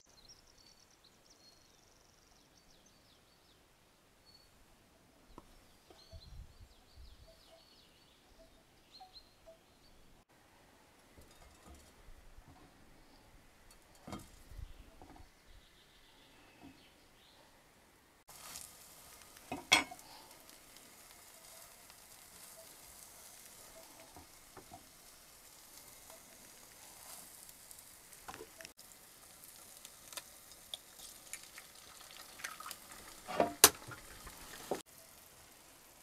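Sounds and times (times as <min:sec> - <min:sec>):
food sizzling in a pan: 0:18.3 - 0:36.0
utensil clattering against pan: 0:19.5 - 0:20.0.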